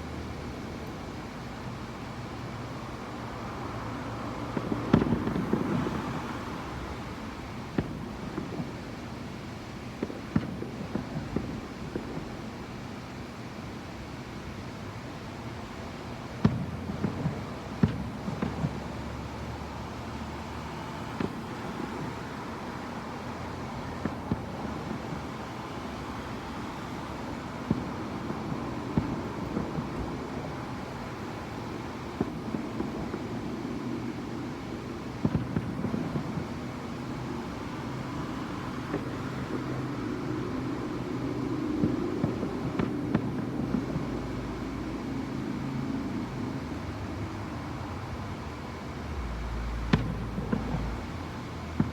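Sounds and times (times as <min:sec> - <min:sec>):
distant fireworks bangs: 0:04.4 - 0:12.8, 0:16.4 - 0:45.0, 0:49.5 - 0:51.9.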